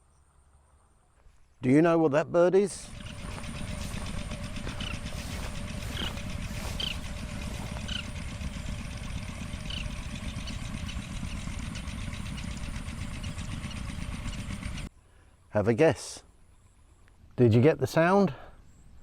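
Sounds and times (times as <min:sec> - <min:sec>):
bird chirps: 0:02.8 - 0:14.7
low rumble: 0:02.8 - 0:14.9.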